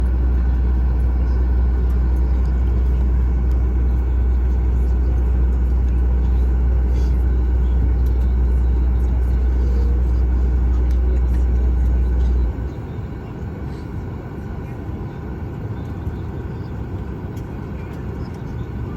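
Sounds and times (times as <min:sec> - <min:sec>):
loud low rumble: 0:00.0 - 0:12.8.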